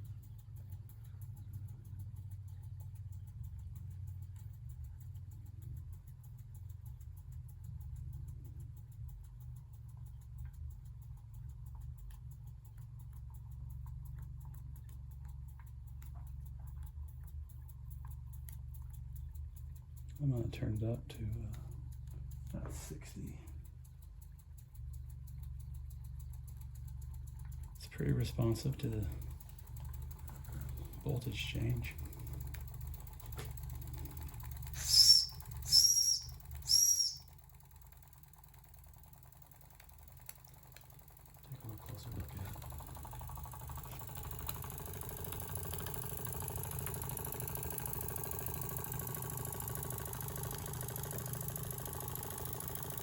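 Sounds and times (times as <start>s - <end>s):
fast even ticking: 0.0s - 53.0s
steady low hum: 0.0s - 53.0s
steam engine running: 26.4s - 53.0s
shrill steam whistle toots: 34.8s - 37.2s.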